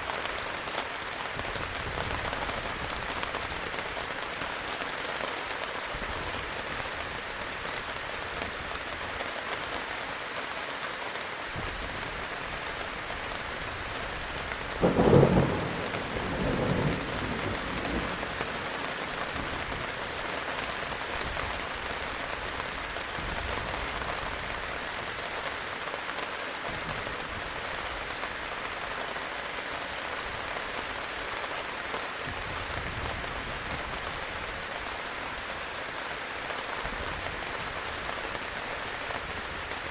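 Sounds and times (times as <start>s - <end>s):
heavy rain: 0.0s - 39.9s
thunderclap: 14.8s - 18.6s
distant thunder rumble: 14.8s - 19.8s.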